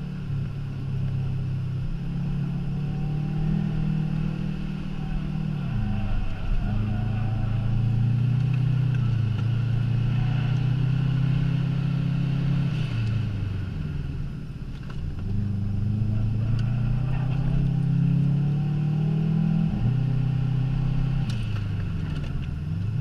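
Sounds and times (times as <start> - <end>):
car engine revving hard: 15.3 - 21.4.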